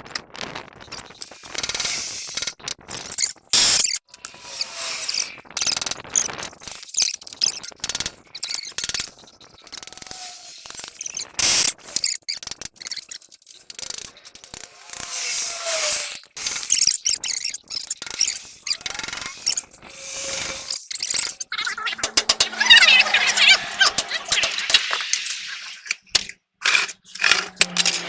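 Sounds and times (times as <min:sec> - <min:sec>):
hand tools clicking on metal: 0:06.9 - 0:28.0.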